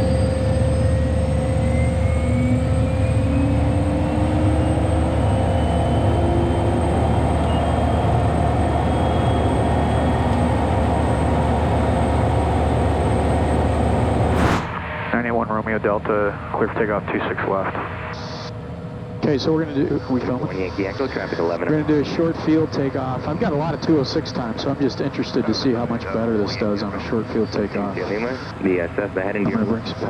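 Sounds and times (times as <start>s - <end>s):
rising whines: 14.1s - 15.1s.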